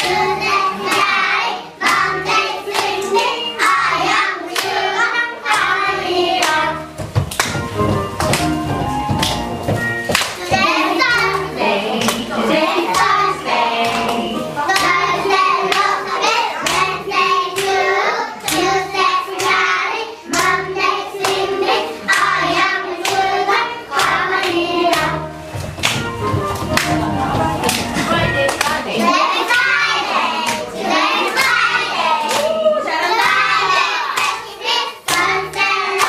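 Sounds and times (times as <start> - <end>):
children singing together: 0.0 - 6.9, 10.4 - 25.4, 28.9 - 36.0
backing track music: 0.0 - 36.0
hand claps: 2.7 - 3.4, 6.4 - 10.5, 11.1 - 12.3, 12.9 - 13.2, 15.7 - 16.0, 17.5 - 19.6, 20.3 - 20.6, 23.0 - 23.3, 23.9 - 28.8, 30.4 - 30.7, 32.2 - 33.4, 34.2 - 34.4, 35.1 - 36.0.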